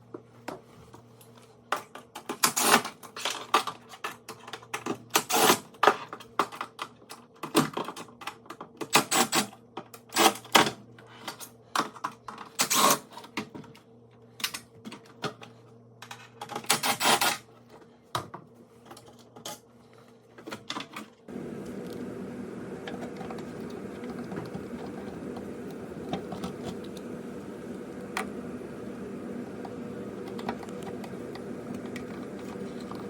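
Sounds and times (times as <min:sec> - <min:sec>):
faint steady hum: 0:21.3 - 0:33.0.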